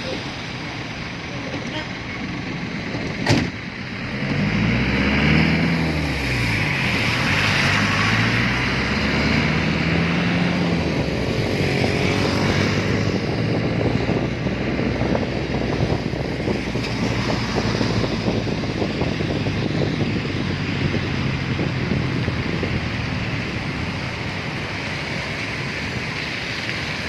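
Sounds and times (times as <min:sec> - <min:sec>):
road and wind noise: 0:00.0 - 0:27.0
vehicle engine: 0:00.0 - 0:27.0.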